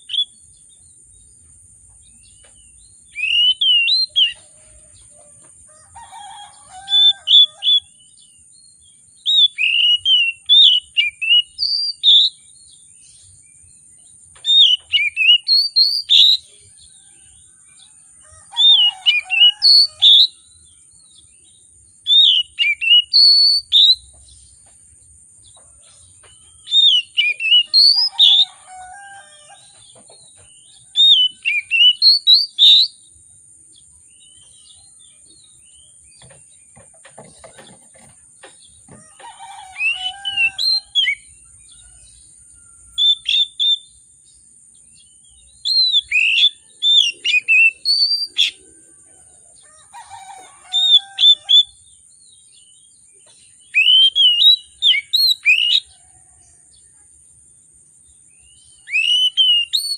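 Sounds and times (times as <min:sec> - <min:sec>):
bird singing whistled phrases: 0:03.2 - 0:04.4, 0:09.2 - 0:12.4, 0:14.4 - 0:16.5, 0:18.7 - 0:20.4, 0:22.1 - 0:24.0, 0:26.6 - 0:28.5, 0:31.0 - 0:33.0, 0:43.0 - 0:43.9, 0:45.6 - 0:48.6, 0:53.7 - 0:55.9, 0:58.8 - 0:59.9.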